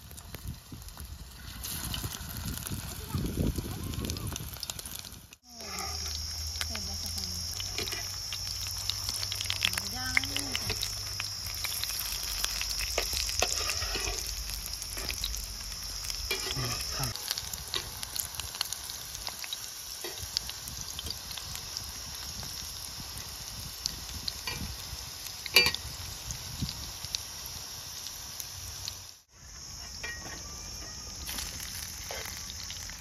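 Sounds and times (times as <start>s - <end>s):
food sizzling in oil: 0.0s - 33.0s
metal spatula in pan: 7.6s - 8.2s, 10.5s - 15.3s, 16.1s - 18.0s, 25.5s - 25.8s, 29.9s - 32.4s.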